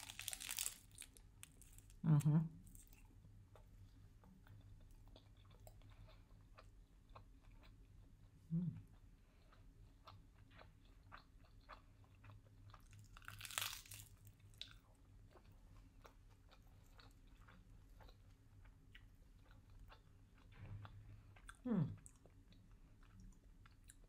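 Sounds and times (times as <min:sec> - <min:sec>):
quiet chewing with moist clicks: 0:02.6 - 0:13.2, 0:14.4 - 0:24.0.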